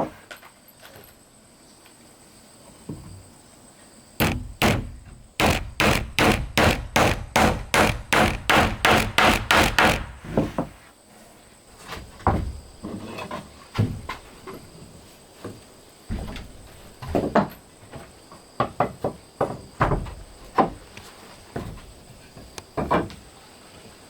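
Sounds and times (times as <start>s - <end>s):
soft knocks: 4.2s - 10.4s
hammer striking wood: 4.2s - 10.6s.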